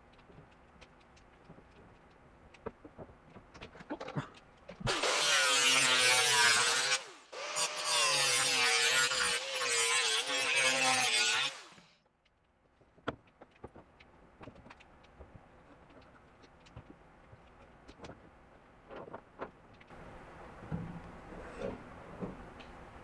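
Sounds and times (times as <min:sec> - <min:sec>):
power tool cutting sheet steel: 0:04.9 - 0:11.9.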